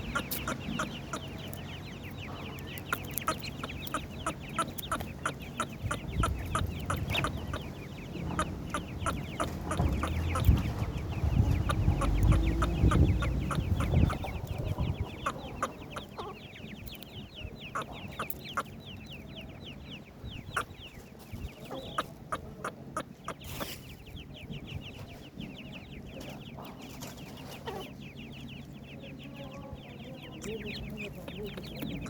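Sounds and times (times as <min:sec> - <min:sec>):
chicks peeping: 0:00.0 - 0:32.0.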